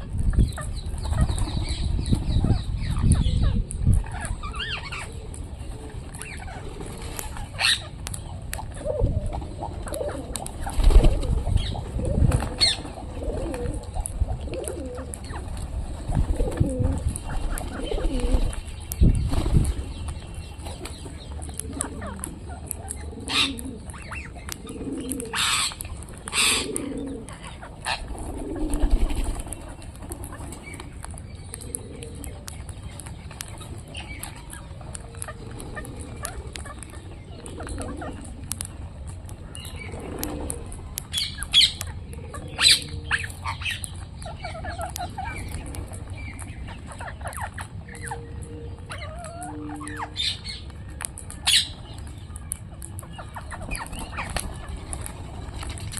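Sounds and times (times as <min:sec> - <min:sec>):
birds cooing: 0:00.0 - 0:55.9
parrots clicking: 0:19.9 - 0:55.9
bird squawks: 0:21.8 - 0:28.2.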